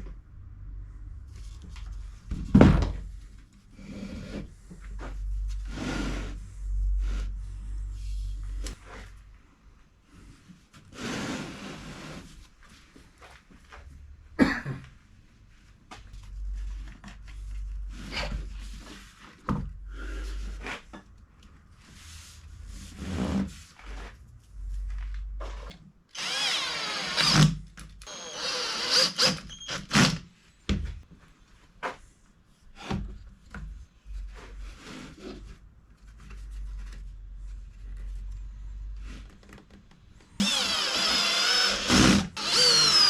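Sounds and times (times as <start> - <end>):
power tool running: 26.2 - 30.2, 40.4 - 43.0.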